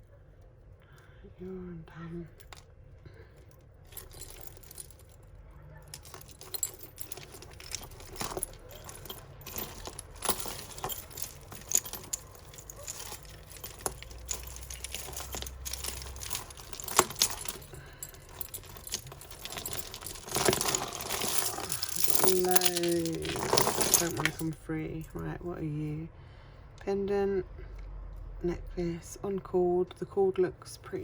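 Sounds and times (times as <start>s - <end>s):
metal chains and beads jingling: 3.9s - 25.2s.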